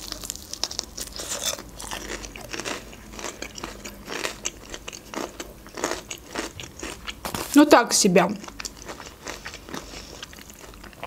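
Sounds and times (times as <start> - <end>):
biting and chewing crispy chicken: 0.0 - 7.6, 8.4 - 11.0.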